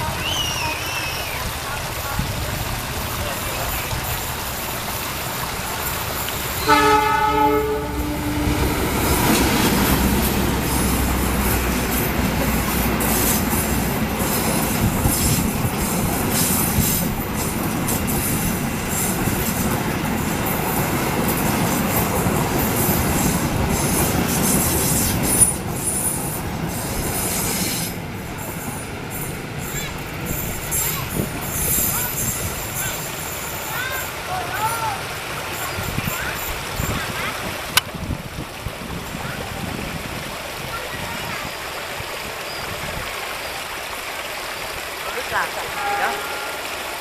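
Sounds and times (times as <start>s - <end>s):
locomotive engine rumble: 0.0s - 47.0s
train horn blast: 6.6s - 9.2s, 45.6s - 47.0s
wheels clicking over rail joints: 8.5s - 45.4s
train wheel squeal: 22.6s - 34.2s.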